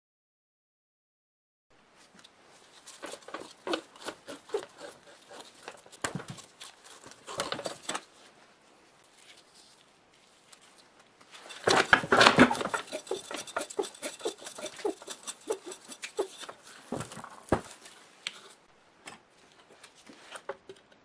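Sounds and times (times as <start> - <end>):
metal scraping: 2.7 - 8.1, 11.3 - 18.6.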